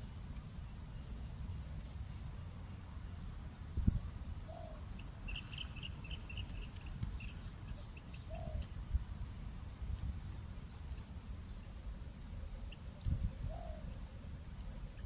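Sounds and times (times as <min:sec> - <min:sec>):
small bird chirping: 0:03.1 - 0:09.2
dove cooing: 0:04.4 - 0:05.6, 0:07.8 - 0:08.7, 0:13.4 - 0:14.0.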